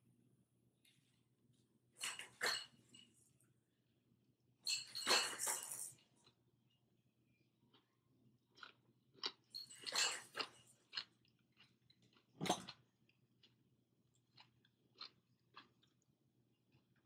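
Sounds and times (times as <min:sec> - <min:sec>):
person chewing: 0:07.7 - 0:17.0.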